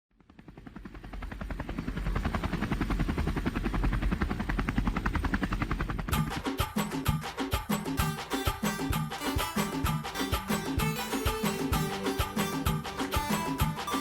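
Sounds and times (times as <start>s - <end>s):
helicopter rotor beating: 0.2s - 14.0s
percussive music: 6.1s - 14.0s.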